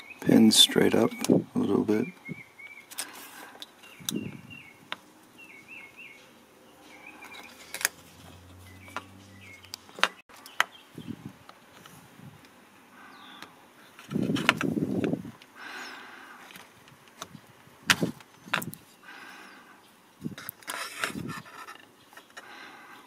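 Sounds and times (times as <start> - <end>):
small bird chirping: 3.8 - 11.3.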